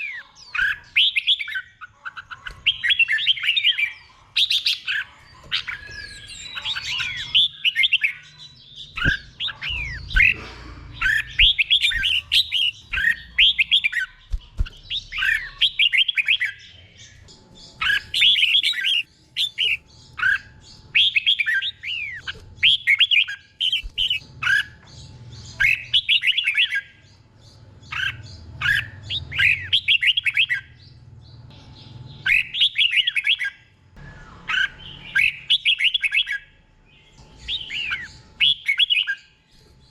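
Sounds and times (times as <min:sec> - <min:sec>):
bird singing whistled phrases: 0:32.2 - 0:36.4.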